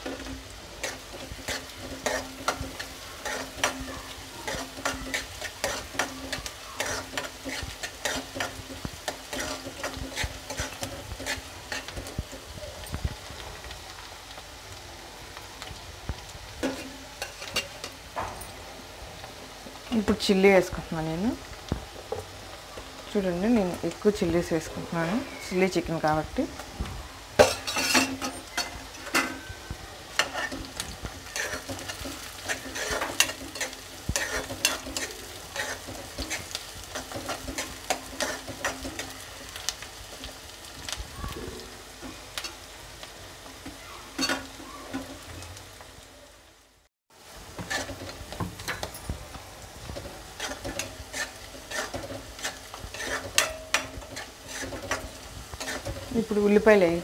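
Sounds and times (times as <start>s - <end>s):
spoon scraping a metal pan: 0.0s - 12.3s, 16.6s - 18.0s, 27.4s - 39.5s, 44.1s - 45.2s, 47.6s - 49.0s, 49.9s - 56.4s
onions sizzling in hot oil: 0.0s - 57.0s.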